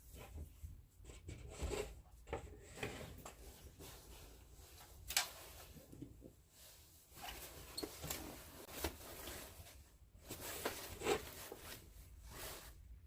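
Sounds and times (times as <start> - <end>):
rustling: 3.3 - 13.0.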